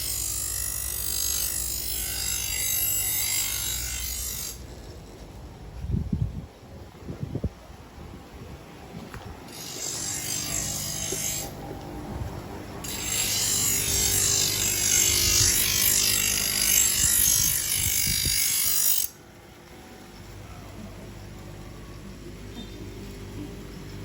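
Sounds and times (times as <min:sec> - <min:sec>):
knife grinding on power grinder: 0:00.0 - 0:05.4, 0:09.5 - 0:11.6, 0:12.8 - 0:19.2
grinder motor hum: 0:09.4 - 0:24.0.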